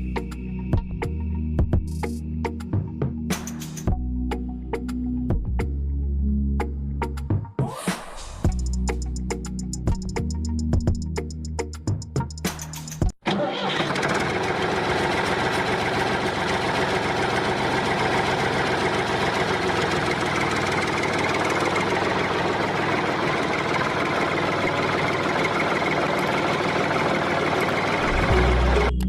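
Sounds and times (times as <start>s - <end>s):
music: 0.0s - 13.2s, 28.0s - 29.0s
steady engine-like running: 13.3s - 29.0s.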